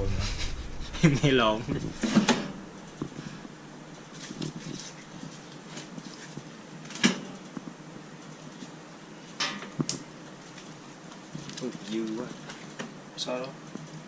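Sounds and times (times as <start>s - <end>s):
metal clank: 0.0s - 3.2s.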